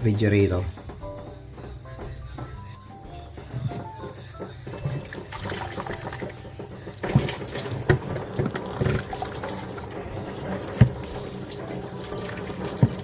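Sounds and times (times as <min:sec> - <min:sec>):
water splashing and trickling: 0:04.7 - 0:13.0.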